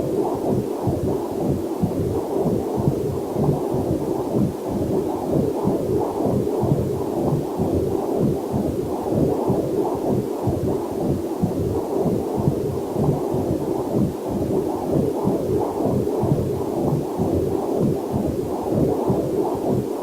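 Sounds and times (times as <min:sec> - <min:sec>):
heartbeat pulsing whooshes: 0:00.0 - 0:20.0.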